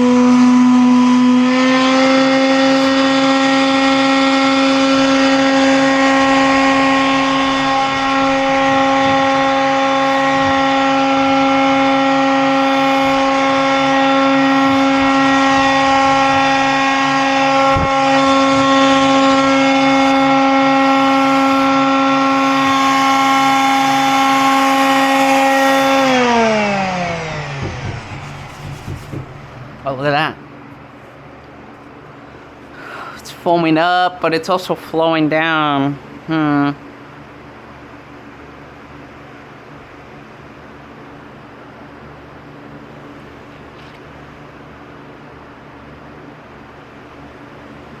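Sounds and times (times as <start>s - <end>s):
small electric motor whining: 0.0s - 30.0s
rush of air: 26.2s - 31.2s.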